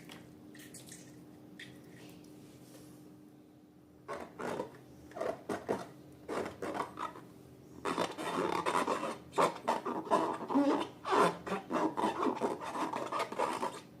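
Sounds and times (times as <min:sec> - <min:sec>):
slime rasping and rubbing: 0:04.1 - 0:07.2, 0:07.8 - 0:13.8.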